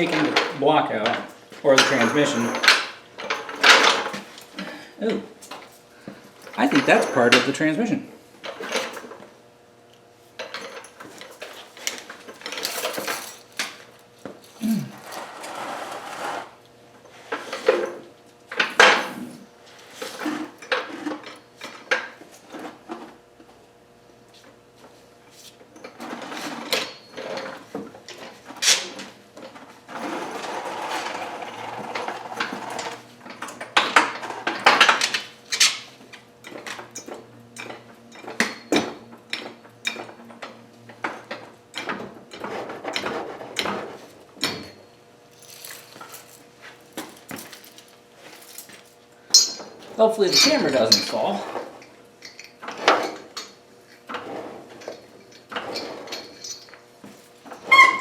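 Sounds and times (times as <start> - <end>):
metal tools clanking: 0.0 - 5.7, 6.5 - 9.1, 10.4 - 13.8, 44.4 - 46.4, 47.0 - 56.8.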